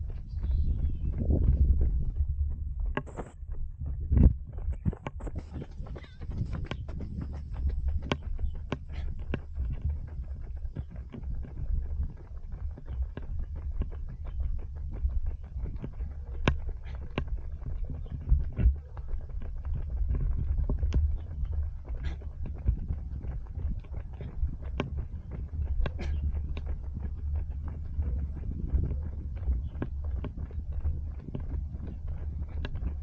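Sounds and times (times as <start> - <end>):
running footsteps: 0.0 - 33.0
steady low rumble: 0.0 - 33.0.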